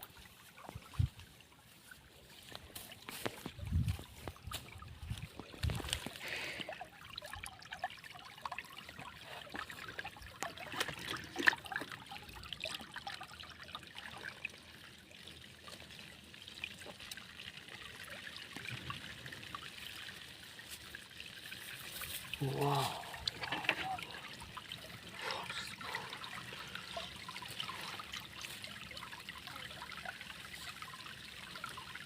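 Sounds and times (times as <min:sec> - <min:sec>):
water trickling: 0:00.0 - 0:32.0
small splashes: 0:00.1 - 0:14.2.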